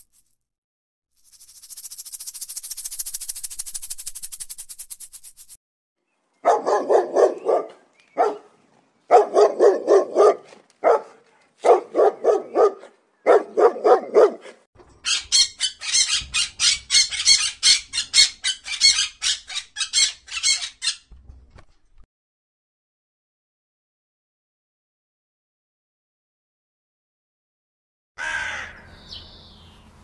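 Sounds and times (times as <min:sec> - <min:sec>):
dog barking: 0:06.4 - 0:08.5, 0:09.1 - 0:14.6
parakeet squawking: 0:15.0 - 0:21.0.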